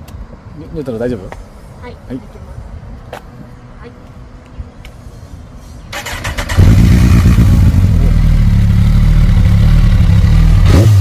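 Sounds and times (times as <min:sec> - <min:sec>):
motorcycle starter cranking: 0:05.9 - 0:07.4
motorcycle engine idling: 0:06.0 - 0:10.7.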